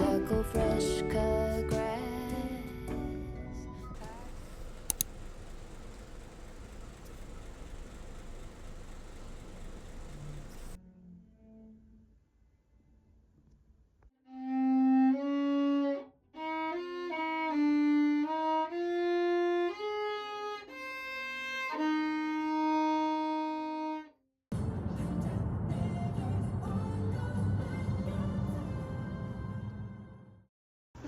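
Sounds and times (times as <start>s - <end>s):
solo violin melody: 14.2s - 24.2s.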